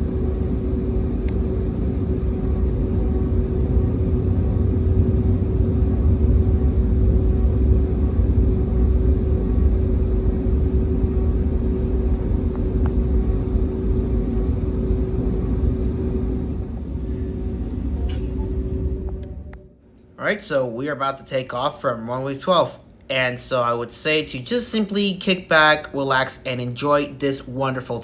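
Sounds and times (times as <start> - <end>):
jet engines at low power: 0.0 - 21.3
low cabin rumble: 0.0 - 28.0.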